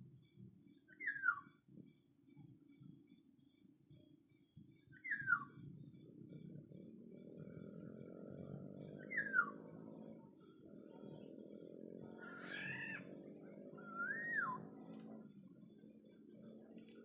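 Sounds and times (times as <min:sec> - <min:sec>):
bird fluty whistled calls: 0:00.9 - 0:01.5, 0:04.4 - 0:05.6, 0:09.0 - 0:09.6, 0:13.7 - 0:15.1.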